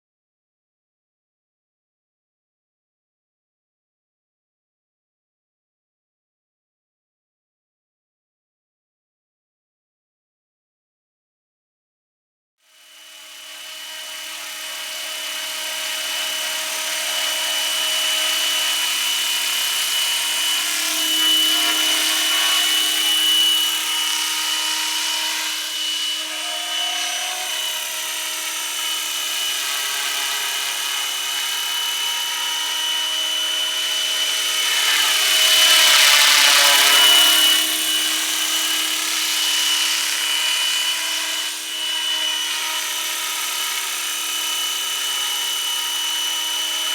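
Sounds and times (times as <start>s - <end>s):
model helicopter rotor whine: 12.7s - 46.9s.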